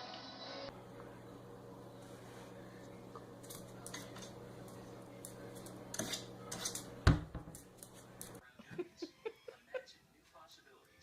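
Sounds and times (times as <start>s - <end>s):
steady low hum: 0.7s - 8.4s.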